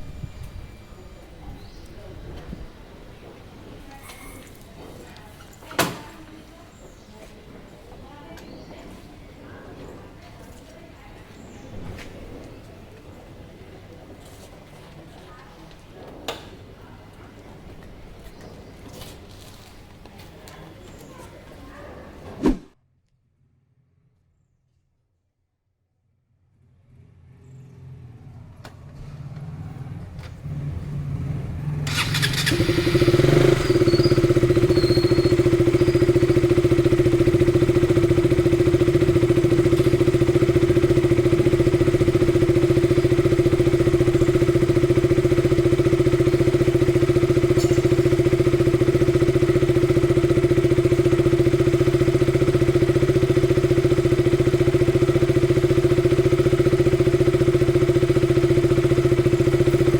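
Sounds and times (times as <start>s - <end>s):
motorcycle engine idling: 0.0s - 21.8s, 29.2s - 59.9s
motorcycle starter cranking: 31.8s - 59.9s.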